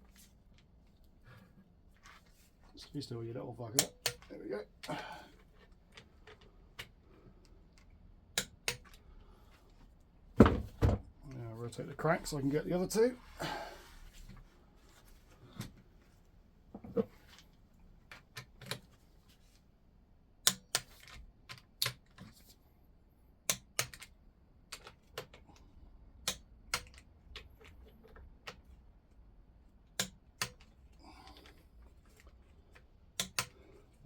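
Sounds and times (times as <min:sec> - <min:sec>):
sharp metal clicks and taps: 0:03.8 - 0:04.3, 0:07.8 - 0:09.0, 0:20.4 - 0:22.1, 0:23.5 - 0:24.1, 0:26.2 - 0:28.6, 0:30.0 - 0:30.7, 0:33.2 - 0:33.6.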